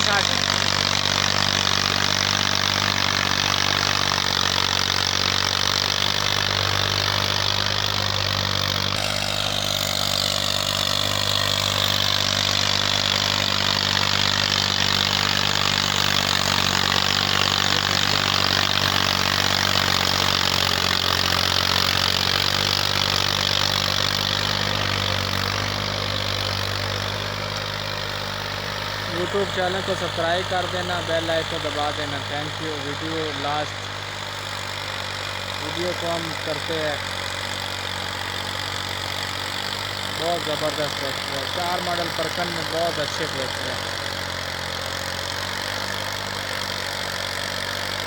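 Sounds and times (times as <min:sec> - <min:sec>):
diesel tractor engine running: 0:00.0 - 0:48.0.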